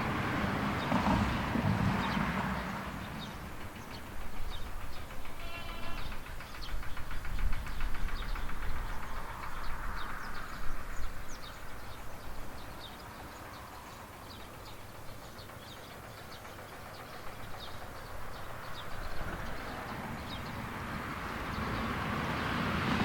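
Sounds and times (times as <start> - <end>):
small birds chirping: 0.8 - 22.6
wind buffeting microphone: 6.0 - 13.6
steady rushing noise: 6.0 - 23.0.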